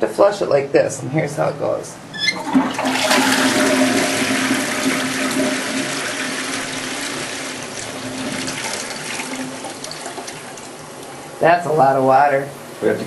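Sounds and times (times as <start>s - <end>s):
toilet flushing water rush: 2.3s - 11.3s.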